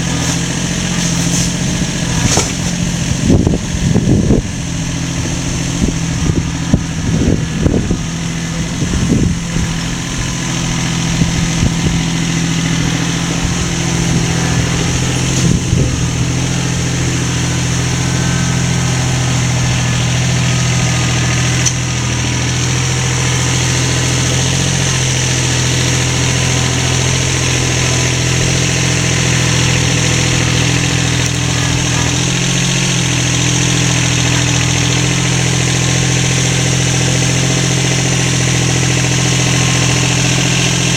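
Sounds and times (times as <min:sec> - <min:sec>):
motor humming: 0:00.0 - 0:40.9.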